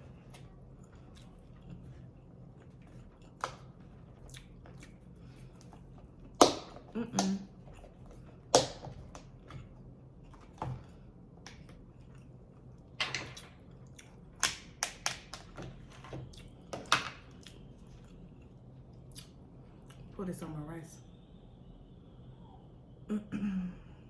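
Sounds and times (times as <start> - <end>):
person chewing food: 0.0 - 15.4, 17.3 - 20.1.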